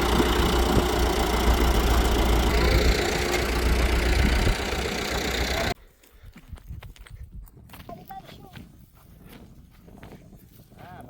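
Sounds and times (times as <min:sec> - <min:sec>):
engine droning: 0:00.0 - 0:05.8.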